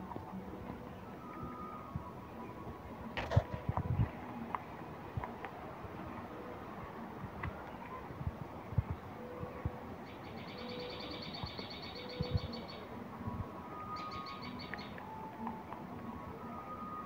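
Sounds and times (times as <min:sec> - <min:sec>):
bird chirping trill: 0:10.0 - 0:12.9, 0:13.6 - 0:15.0.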